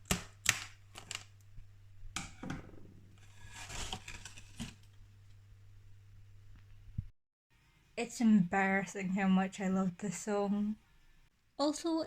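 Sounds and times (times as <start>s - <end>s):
steady low hum: 0.0s - 7.1s
rustling: 0.1s - 7.1s.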